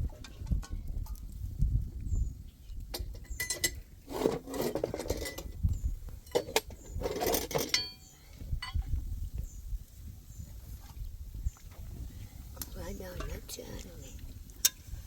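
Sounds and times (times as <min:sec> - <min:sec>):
knocks and clinks: 0:03.0 - 0:05.6, 0:06.3 - 0:08.8
scraping: 0:04.1 - 0:05.6.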